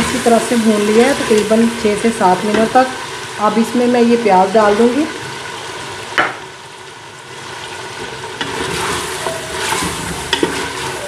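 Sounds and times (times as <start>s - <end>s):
onions sizzling in oil: 0.0s - 11.0s
wooden spoon scraping pot: 8.4s - 11.0s.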